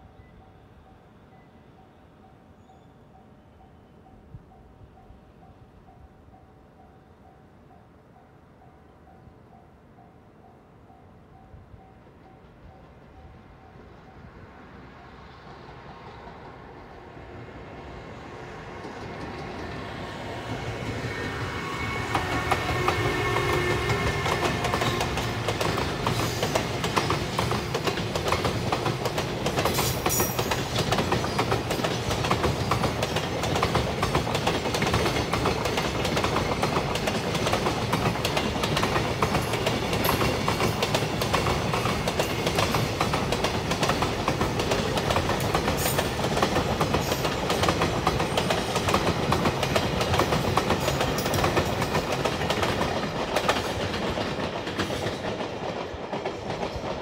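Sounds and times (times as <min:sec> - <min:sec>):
freight train wheels clattering: 0:18.7 - 0:57.0.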